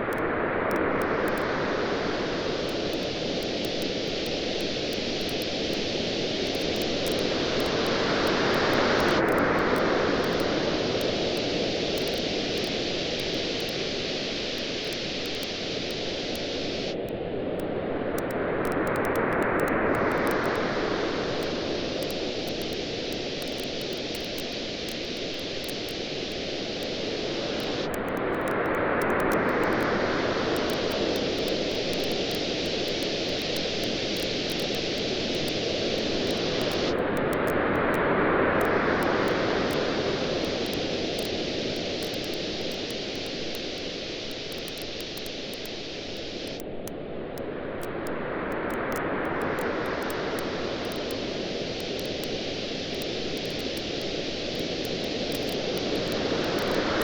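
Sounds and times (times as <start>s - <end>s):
ocean waves washing ashore: 0.0s - 57.0s
campfire crackling: 20.0s - 29.9s, 30.5s - 37.4s, 38.7s - 46.8s.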